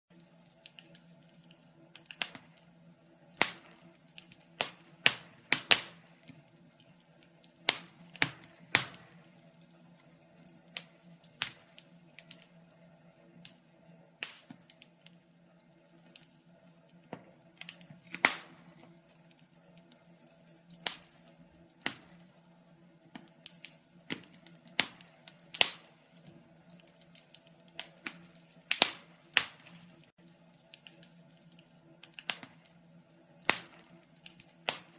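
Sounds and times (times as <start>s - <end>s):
wood fire crackling: 0.1s - 34.9s.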